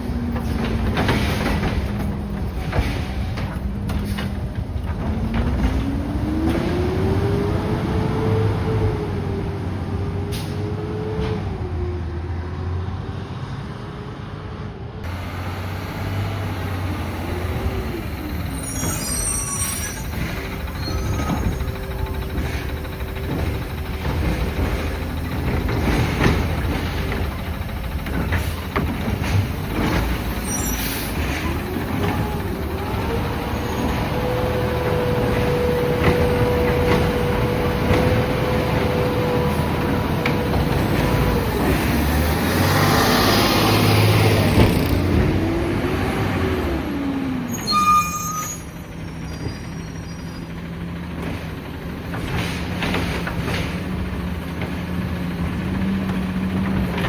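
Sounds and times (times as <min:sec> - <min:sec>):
garbage truck engine revving: 0:00.0 - 0:11.7, 0:15.1 - 0:47.6
high squeal: 0:18.2 - 0:22.5, 0:30.3 - 0:31.6, 0:47.5 - 0:50.6.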